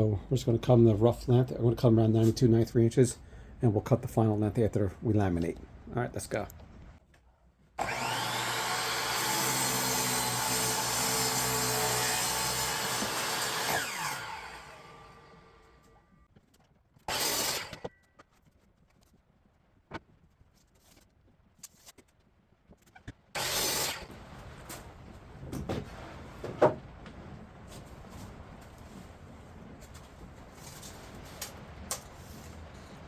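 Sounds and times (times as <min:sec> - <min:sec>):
saw blade winding down: 0:07.8 - 0:15.6, 0:17.1 - 0:17.8, 0:23.4 - 0:24.1
electric saw cutting wood: 0:07.8 - 0:15.9, 0:17.1 - 0:17.9, 0:23.4 - 0:24.1.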